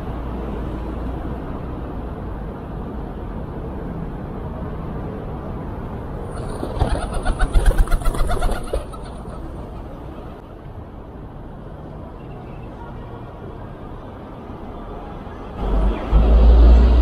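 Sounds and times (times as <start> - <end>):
pigeon wings flapping: 6.3 - 9.4.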